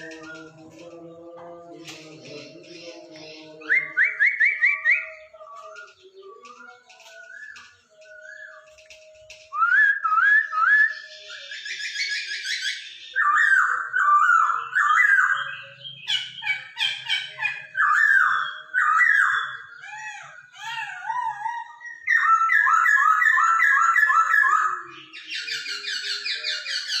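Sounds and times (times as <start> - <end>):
bird chattering trills: 0.0 - 1.2
bird whistled song: 0.0 - 1.2, 1.9 - 27.0.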